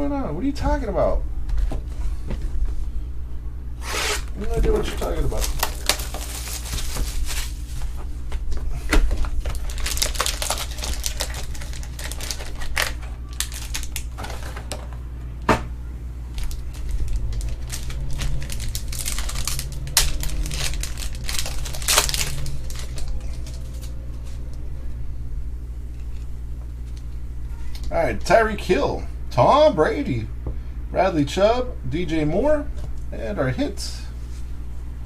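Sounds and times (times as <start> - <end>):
steady low hum: 0.0 - 35.0
plastic crinkling: 3.9 - 8.0, 9.2 - 14.9, 16.3 - 24.6.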